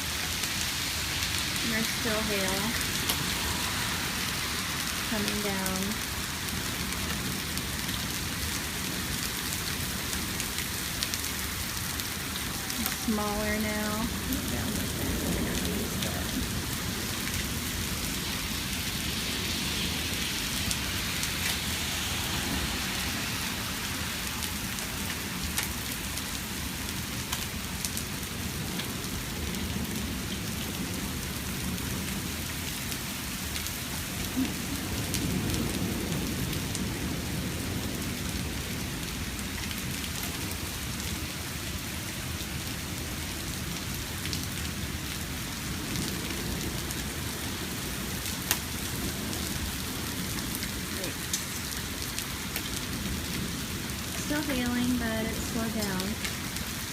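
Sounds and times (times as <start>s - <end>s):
hail and rain hissing: 0.0s - 56.9s
hailstones ticking: 1.2s - 3.6s, 43.8s - 56.7s.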